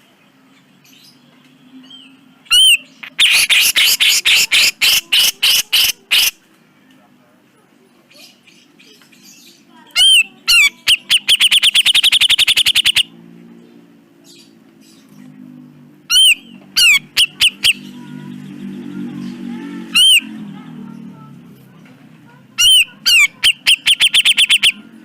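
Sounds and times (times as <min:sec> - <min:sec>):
bulbul singing sharp notes: 0:10.8 - 0:13.1, 0:16.1 - 0:21.0, 0:22.6 - 0:25.0.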